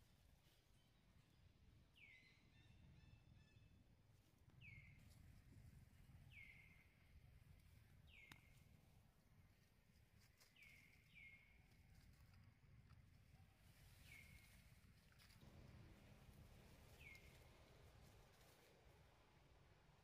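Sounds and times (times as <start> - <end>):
low steady rumble: 10.8 - 20.0.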